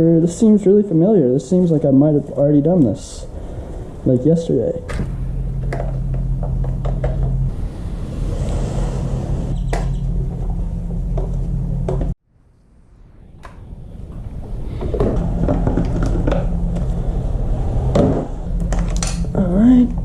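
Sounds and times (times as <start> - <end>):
steady low hum: 0.0 - 20.0
tools and parts clanking: 18.0 - 19.4.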